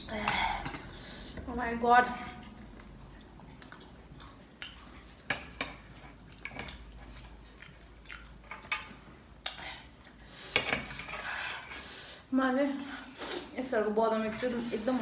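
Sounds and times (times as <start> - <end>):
close-up chewing: 6.1 - 8.7.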